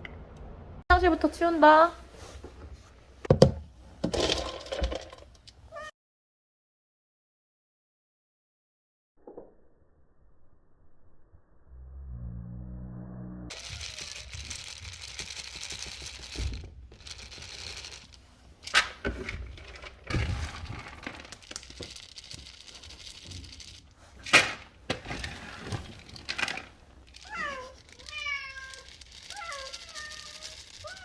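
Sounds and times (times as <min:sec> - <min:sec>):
cat meowing: 0:05.7 - 0:05.9, 0:27.2 - 0:31.0
cat litter scraping and rustling: 0:13.5 - 0:31.0.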